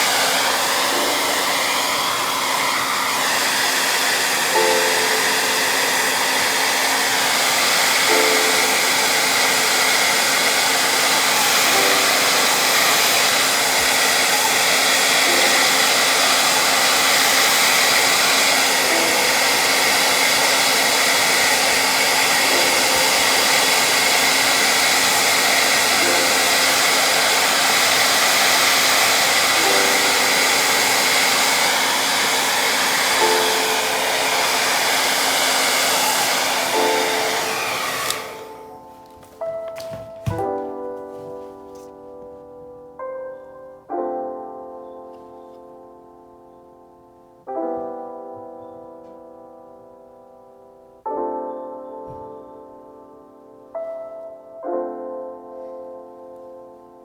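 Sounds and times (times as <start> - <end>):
hair dryer blowing: 0.0 - 42.3.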